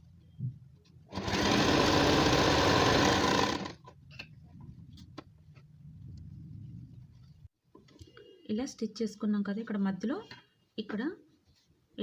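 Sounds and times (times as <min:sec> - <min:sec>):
electric sewing machine running: 0:01.1 - 0:03.8.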